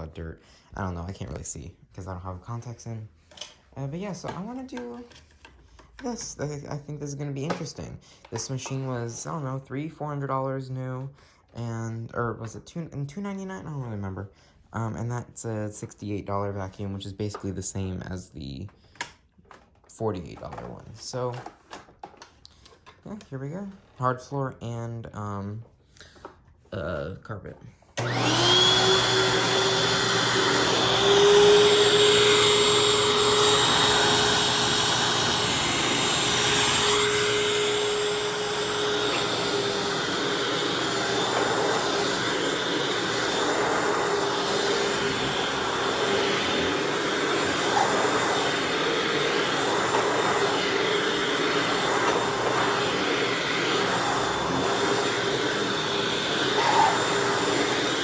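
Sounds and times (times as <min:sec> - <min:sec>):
vacuum cleaner running: 0:00.0 - 0:05.2, 0:05.9 - 0:10.2, 0:28.0 - 0:58.0.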